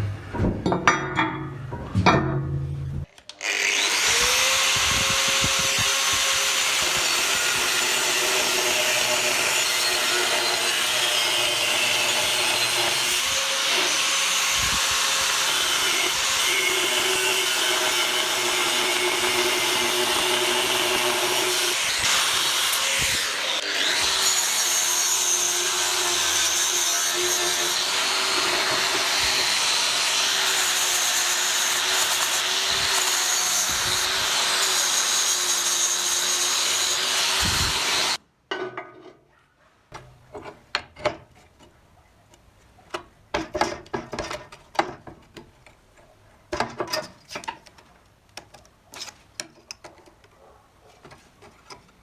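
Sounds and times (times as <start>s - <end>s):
power tool cutting metal: 3.4s - 38.2s.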